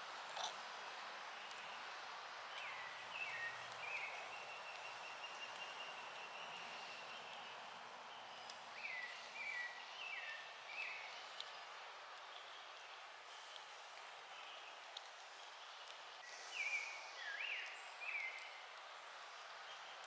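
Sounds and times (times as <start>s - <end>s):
steady forest hiss: 0.0s - 20.0s
faint clicks: 11.3s - 14.2s.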